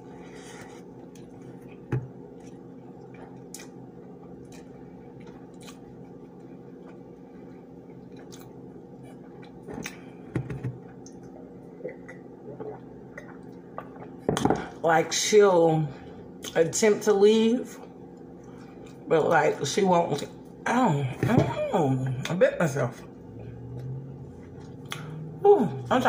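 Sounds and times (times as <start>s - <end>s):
low hum: 0.0s - 26.0s
person chewing food: 0.1s - 14.4s, 23.4s - 25.4s.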